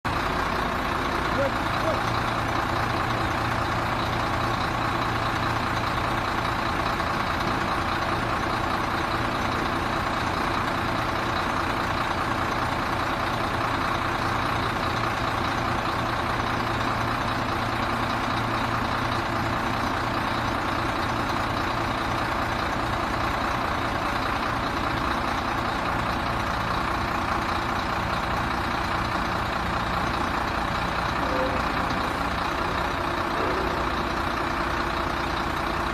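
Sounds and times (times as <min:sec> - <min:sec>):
diesel truck engine running: 0:00.0 - 0:35.9.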